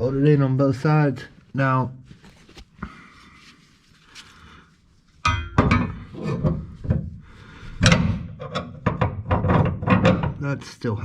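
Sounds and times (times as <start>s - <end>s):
hard objects knocking and clattering: 5.3s - 7.2s, 7.8s - 10.4s.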